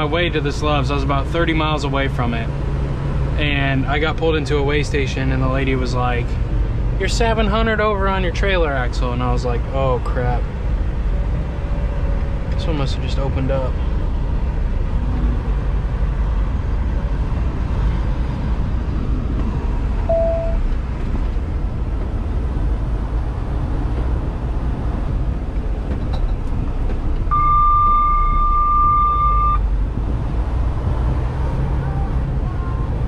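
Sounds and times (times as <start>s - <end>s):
truck engine running in cab: 0.0s - 33.0s
high electronic beep: 20.1s - 20.6s, 27.3s - 29.6s
short tone: 20.1s - 20.6s, 27.3s - 29.6s.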